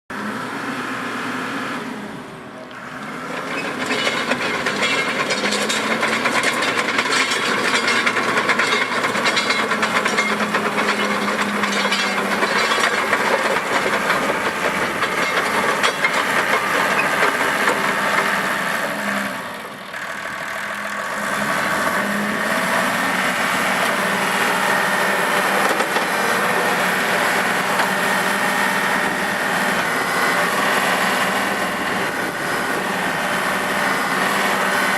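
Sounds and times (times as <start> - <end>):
tractor diesel engine: 0.1 - 34.9
mechanical clatter: 3.4 - 17.9.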